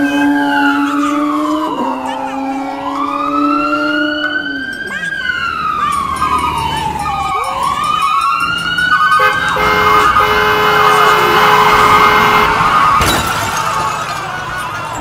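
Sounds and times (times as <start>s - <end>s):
fire engine siren wailing: 0.0s - 15.0s.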